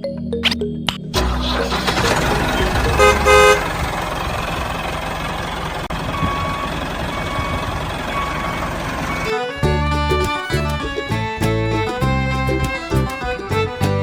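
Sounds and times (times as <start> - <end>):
truck engine running: 1.2 - 14.0
reversing alarm beeping: 5.9 - 9.7.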